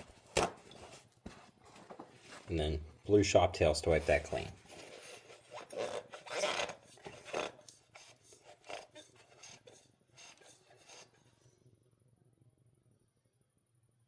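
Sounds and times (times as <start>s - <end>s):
paper towel scrubbing metal: 3.6s - 11.3s.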